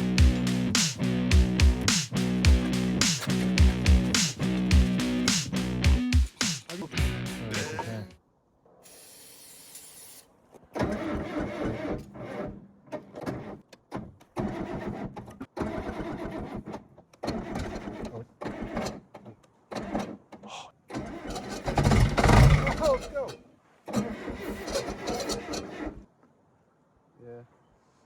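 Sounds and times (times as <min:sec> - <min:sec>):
diesel engine cranking: 0:00.0 - 0:05.9, 0:10.8 - 0:13.6, 0:14.4 - 0:20.2, 0:20.9 - 0:23.3, 0:23.9 - 0:26.0.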